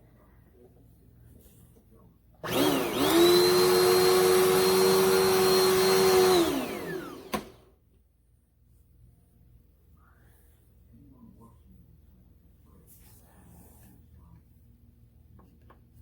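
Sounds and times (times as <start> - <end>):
vacuum cleaner click: 2.4 - 7.7
vacuum cleaner motor whining: 2.4 - 7.7.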